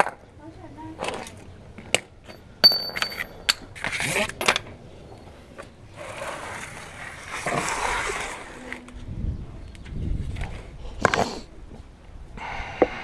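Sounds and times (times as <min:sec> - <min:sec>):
metal clinking on metal: 0:02.3 - 0:03.6.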